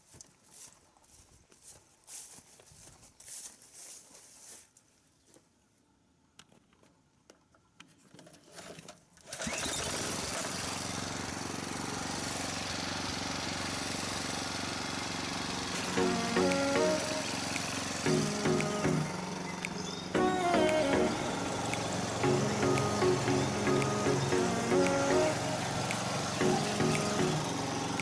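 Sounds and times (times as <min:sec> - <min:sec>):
small sprayer engine running: 0:09.4 - 0:28.0.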